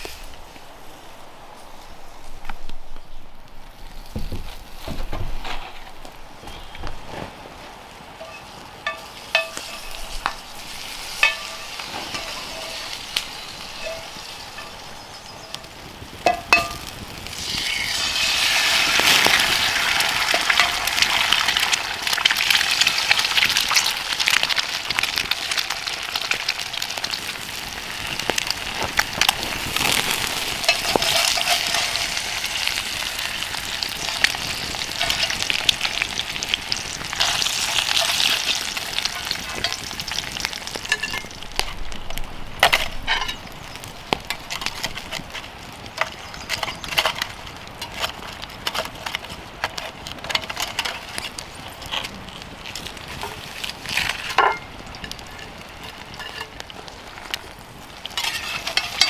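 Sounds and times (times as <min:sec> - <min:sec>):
food sizzling in a hot pan: 0:08.0 - 0:59.0.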